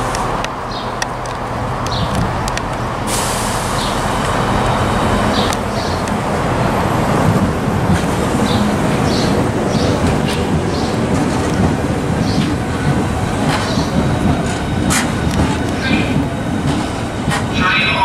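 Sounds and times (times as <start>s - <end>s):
electric train passing: 0.0s - 18.0s
train wheels rumbling: 0.0s - 18.0s
train hiss: 3.0s - 4.3s.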